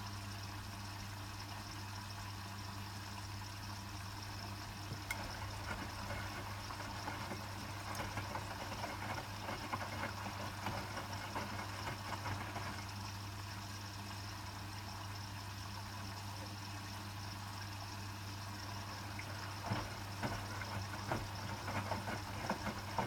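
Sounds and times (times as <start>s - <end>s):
washing machine motor hum: 0.0s - 23.0s
water sloshing in drum: 4.6s - 13.2s, 18.5s - 23.0s.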